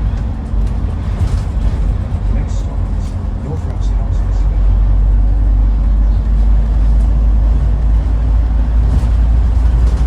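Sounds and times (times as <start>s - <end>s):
bus engine drone: 0.0s - 10.0s
road and cabin noise: 0.0s - 10.0s.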